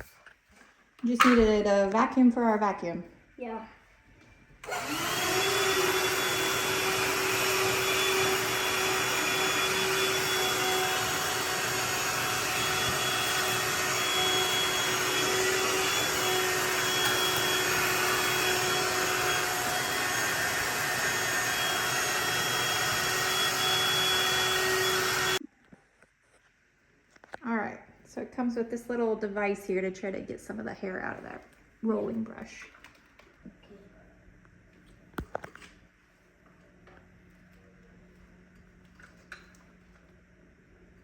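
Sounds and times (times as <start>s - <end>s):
vacuum cleaner whine: 4.6s - 25.4s.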